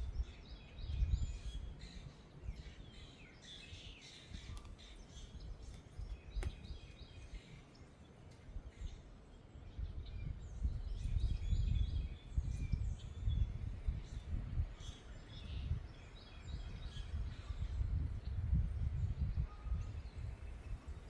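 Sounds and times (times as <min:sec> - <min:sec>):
wind rumbling on microphone: 0:00.0 - 0:07.7, 0:08.3 - 0:21.0
small birds chirping: 0:00.1 - 0:18.0
sharp click: 0:05.7 - 0:06.8.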